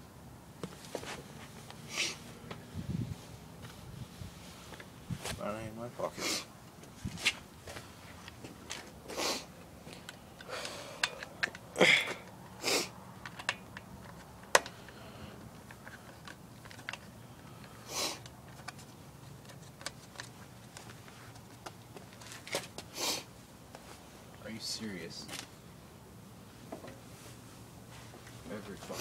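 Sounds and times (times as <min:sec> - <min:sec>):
breathy noises: 0:09.1 - 0:13.0, 0:14.7 - 0:16.2
tools and parts clinking: 0:09.9 - 0:12.5, 0:13.2 - 0:20.9.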